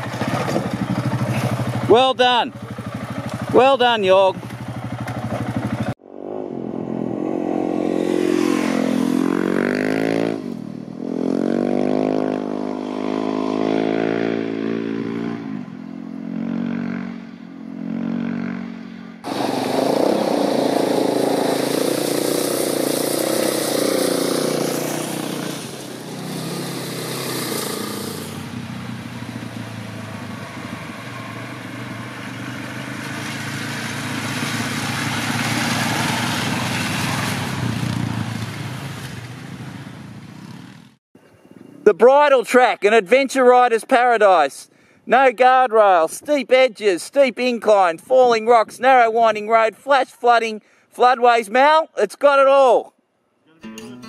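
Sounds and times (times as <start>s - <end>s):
motorcycle engines revving: 0.0s - 41.0s.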